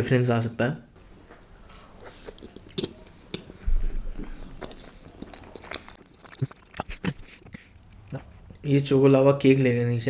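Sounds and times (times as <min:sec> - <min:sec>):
chewing and biting food: 0:01.3 - 0:08.7
wet mouth clicks: 0:02.0 - 0:08.6.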